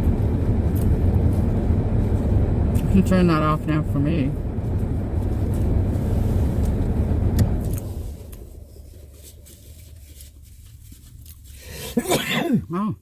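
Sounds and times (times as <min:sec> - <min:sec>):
car engine running: 0:00.0 - 0:12.9.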